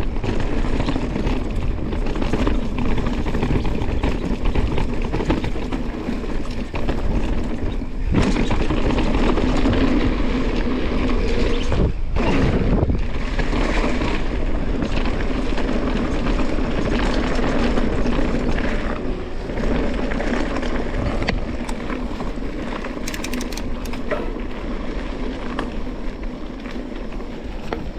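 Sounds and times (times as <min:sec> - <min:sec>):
bike tyres rumbling on dirt: 0:00.0 - 0:27.9
wind on microphone: 0:00.0 - 0:27.9
bike frame rattle: 0:00.2 - 0:11.6, 0:13.3 - 0:27.9
sharp clicks: 0:22.7 - 0:24.2.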